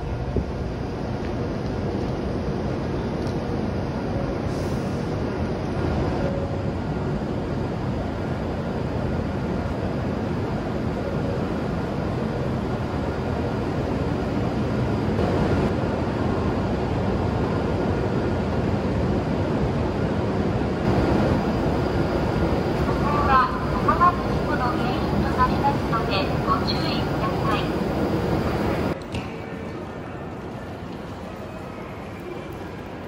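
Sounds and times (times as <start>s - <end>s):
train humming at platform: 0.0s - 33.0s
platform ambience: 20.9s - 29.0s.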